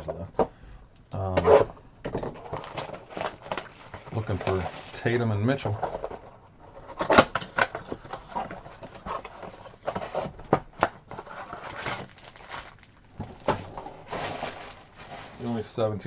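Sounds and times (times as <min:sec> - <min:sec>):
packaging rustling and crinkling: 0:02.3 - 0:06.2, 0:07.0 - 0:15.7.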